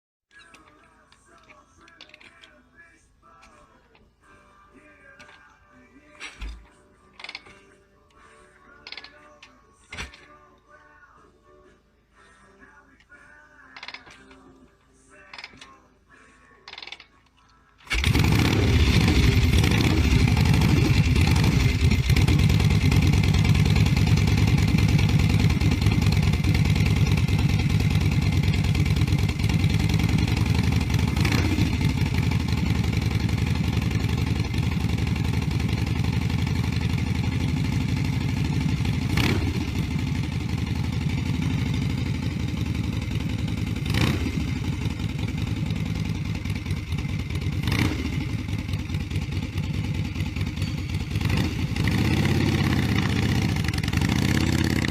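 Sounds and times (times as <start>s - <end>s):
motorcycle engine idling: 17.9s - 54.9s.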